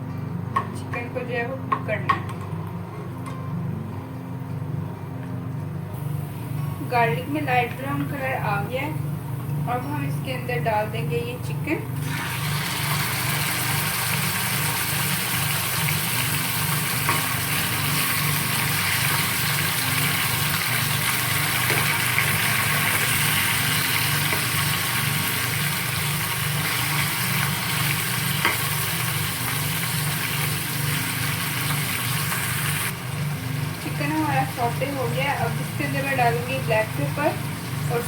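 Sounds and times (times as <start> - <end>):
chicken sizzling in a pan: 12.0 - 38.0.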